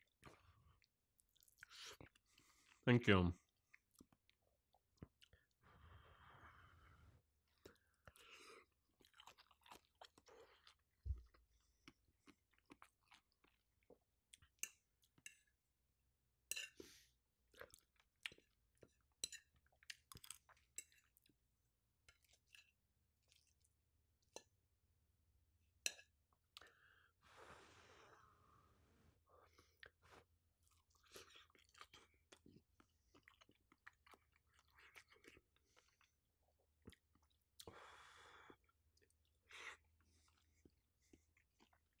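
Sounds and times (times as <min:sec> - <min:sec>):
chewing food with mouth clicks: 0:00.0 - 0:02.8, 0:07.5 - 0:15.6, 0:17.5 - 0:24.6, 0:29.8 - 0:37.8, 0:38.5 - 0:39.4, 0:40.0 - 0:42.0.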